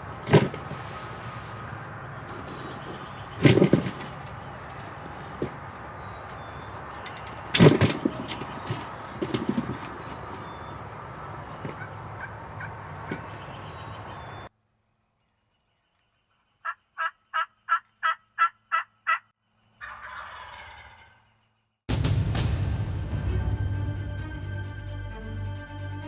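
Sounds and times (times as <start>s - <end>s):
turkey gobble: 0.0s - 14.5s, 16.6s - 21.3s
wild turkey yelping: 0.0s - 14.5s, 16.6s - 21.2s
loud abrupt sound: 21.9s - 24.4s.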